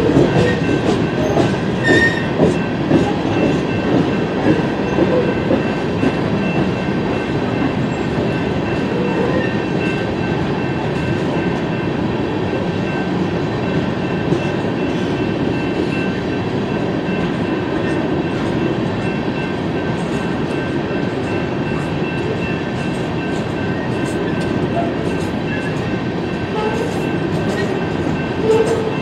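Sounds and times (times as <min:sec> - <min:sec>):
train cars rumbling on rails: 0:00.0 - 0:29.0.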